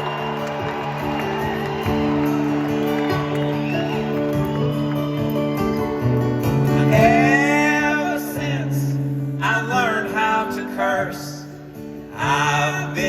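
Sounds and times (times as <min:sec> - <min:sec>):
acoustic band playing: 0:00.0 - 0:13.0
guitar: 0:00.0 - 0:13.0
person singing: 0:06.6 - 0:11.4.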